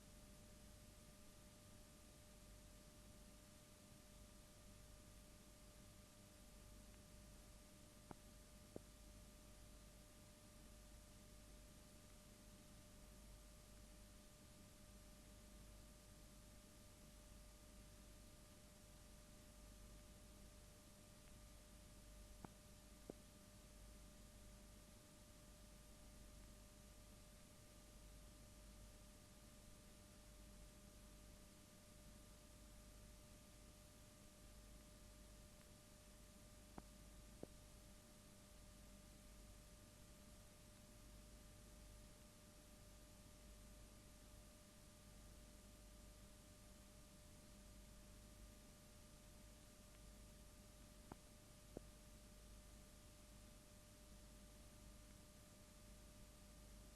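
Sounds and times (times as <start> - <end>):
thin steady whine: 0.0 - 16.1
faint hiss and hum: 0.0 - 56.9.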